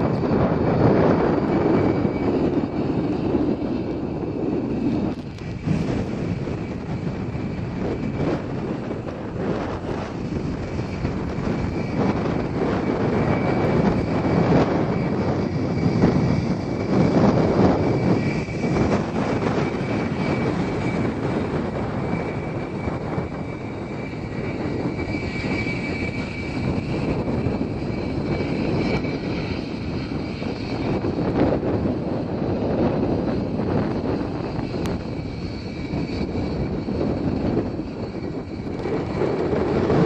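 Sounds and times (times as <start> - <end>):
aircraft engines running: 0.0 - 40.0.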